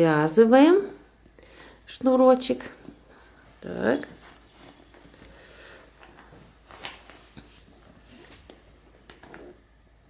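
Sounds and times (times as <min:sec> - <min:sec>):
fabric rustling: 0:03.8 - 0:09.6.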